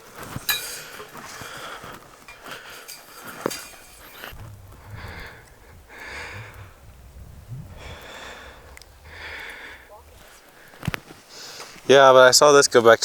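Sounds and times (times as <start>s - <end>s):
person breathing hard: 0.7s - 11.9s
low rumble: 4.3s - 10.8s.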